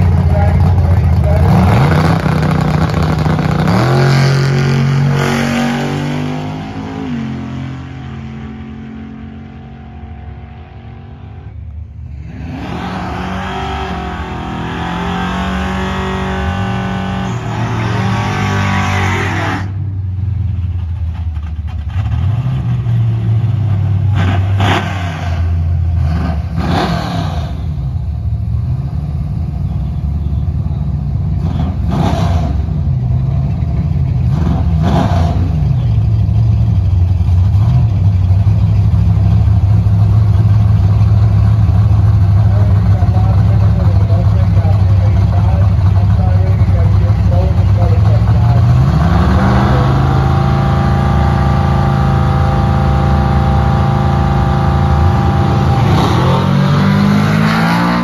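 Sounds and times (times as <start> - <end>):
cars idling: 0.0 - 3.9, 27.5 - 57.5
car engines at full throttle: 0.0 - 58.0
engine throttle blips: 33.5 - 58.0.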